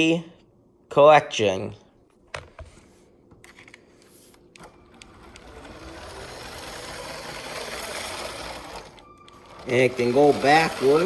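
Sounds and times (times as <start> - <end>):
toy train whirring on plastic track: 4.6 - 11.0.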